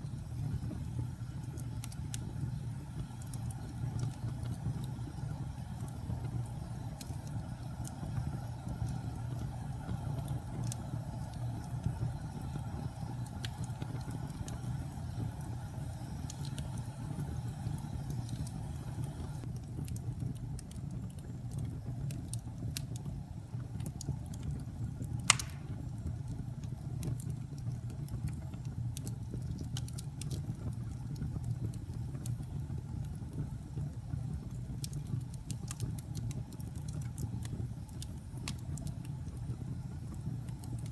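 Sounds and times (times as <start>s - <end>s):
fire crackling and popping: 0.0s - 40.9s
fire rumbling: 0.0s - 40.9s.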